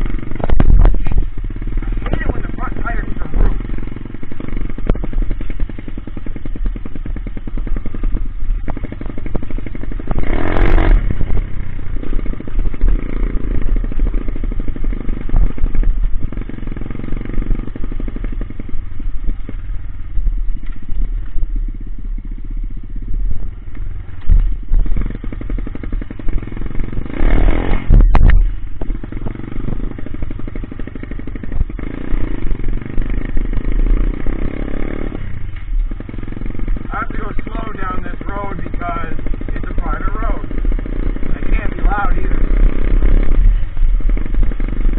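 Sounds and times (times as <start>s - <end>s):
small motorcycle engine running: 0.0s - 44.9s.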